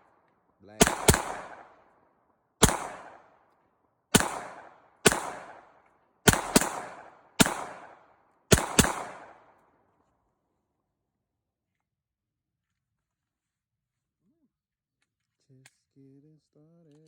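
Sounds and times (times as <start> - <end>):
rifle shots with echo: 0.0 - 2.0, 2.6 - 3.5, 4.1 - 9.8.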